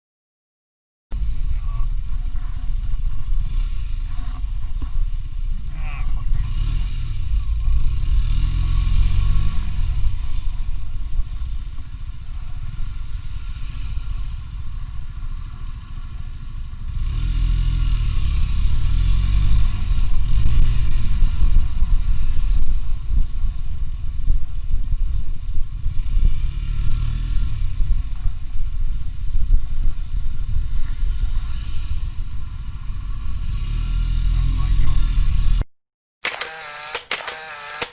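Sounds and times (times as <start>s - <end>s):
motorcycle engine accelerating: 6.2s - 35.6s.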